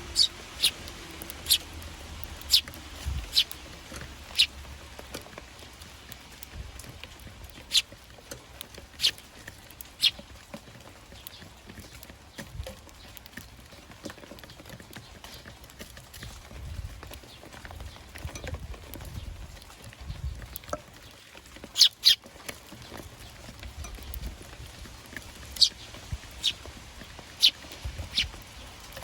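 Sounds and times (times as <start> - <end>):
sparrows chirping: 0.0 - 29.0.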